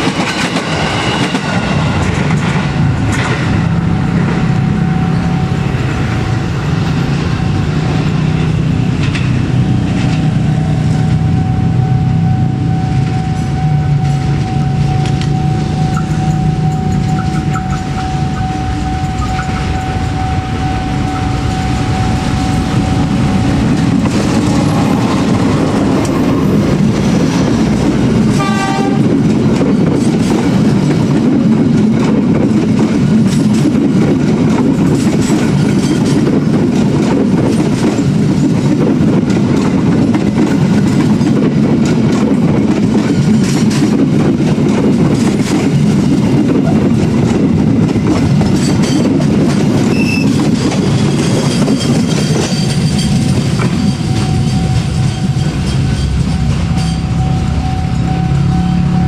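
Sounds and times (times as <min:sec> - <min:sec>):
diesel locomotive engine: 0:00.0 - 0:59.0
wheels clattering over rail joints: 0:23.5 - 0:57.4
locomotive horn toot: 0:28.3 - 0:29.2.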